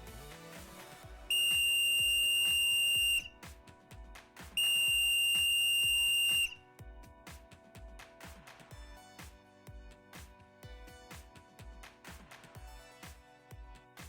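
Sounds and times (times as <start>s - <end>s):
background music: 0.0s - 14.0s
long electronic beeps: 1.3s - 3.3s, 4.6s - 6.6s.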